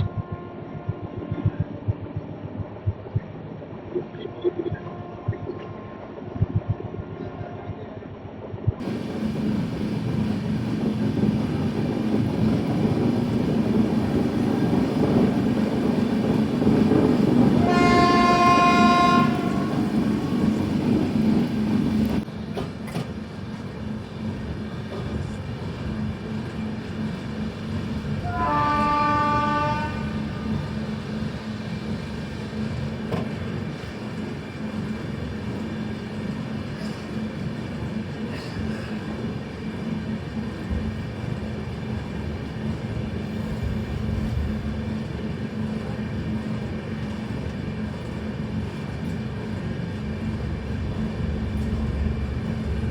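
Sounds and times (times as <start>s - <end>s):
train rumbling on track: 0.0s - 52.9s
train horn blasts: 17.6s - 20.0s, 28.2s - 30.7s.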